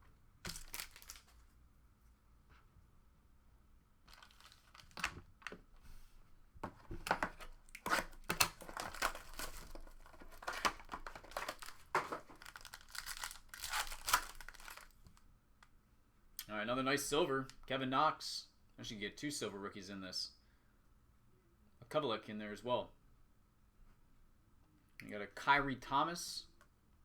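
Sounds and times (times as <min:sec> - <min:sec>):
packaging tearing and crinkling: 0:00.5 - 0:01.4, 0:04.1 - 0:05.2, 0:07.0 - 0:15.1.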